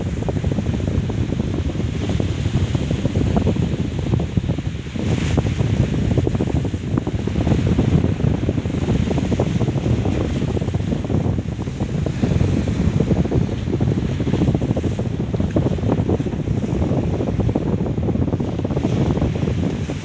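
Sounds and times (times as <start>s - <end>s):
wind blowing across microphone: 0.0s - 20.0s.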